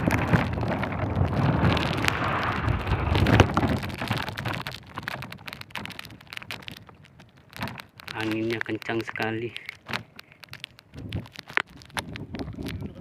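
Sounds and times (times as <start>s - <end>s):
wind buffeting microphone: 0.0s - 7.2s, 10.8s - 13.0s.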